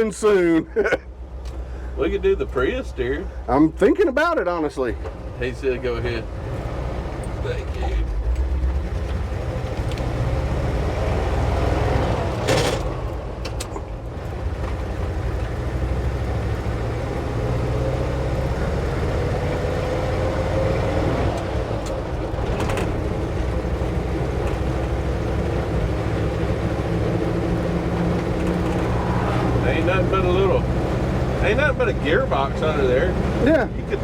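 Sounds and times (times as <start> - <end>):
truck engine droning: 0.0 - 34.0
clunks: 12.3 - 14.0, 21.3 - 26.2, 27.2 - 29.3.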